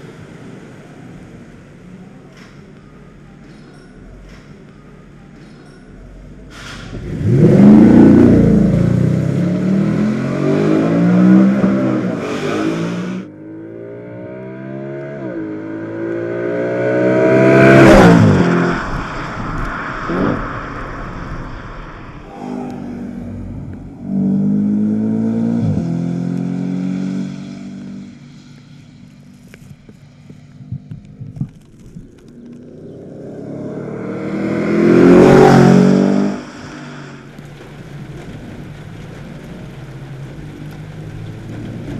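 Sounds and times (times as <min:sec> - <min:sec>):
car engine accelerating hard: 0:06.5 - 0:29.7, 0:30.6 - 0:41.9
car passing at speed: 0:06.9 - 0:29.0, 0:32.6 - 0:41.9.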